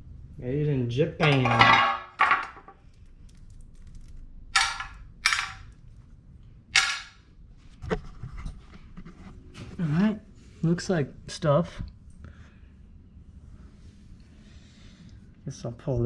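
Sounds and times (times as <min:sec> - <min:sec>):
tools banging on metal pump: 0:01.2 - 0:02.7, 0:04.6 - 0:05.6, 0:06.8 - 0:07.1.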